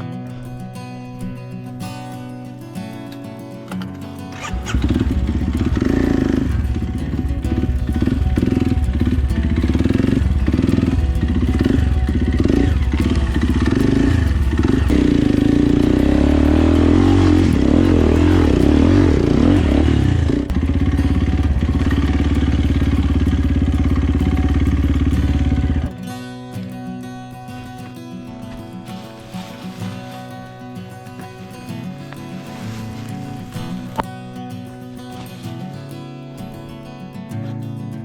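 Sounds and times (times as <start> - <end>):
dirt bike engine revving: 4.3 - 25.9.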